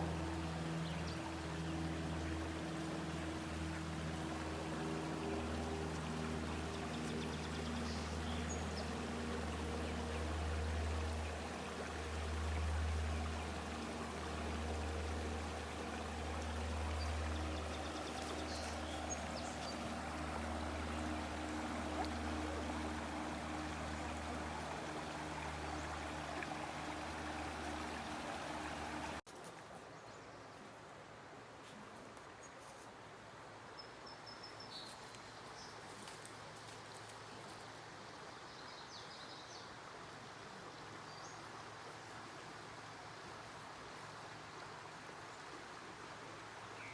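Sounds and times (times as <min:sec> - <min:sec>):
flowing water rushing: 0:00.0 - 0:29.2, 0:35.7 - 0:46.9
low hum: 0:00.0 - 0:29.2
quiet outdoor background: 0:00.0 - 0:46.9.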